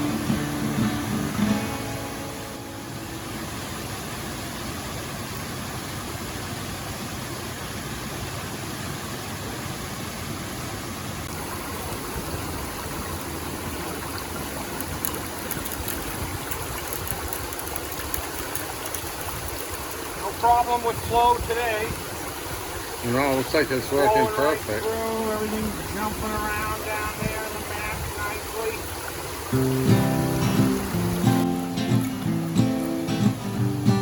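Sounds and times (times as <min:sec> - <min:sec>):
stream and waterfall rushing: 0:00.0 - 0:34.0
light splashes: 0:11.3 - 0:33.4.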